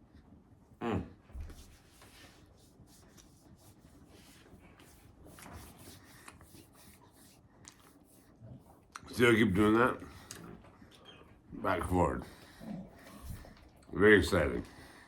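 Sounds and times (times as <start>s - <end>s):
faint chewing: 6.1s - 9.1s, 12.4s - 14.0s.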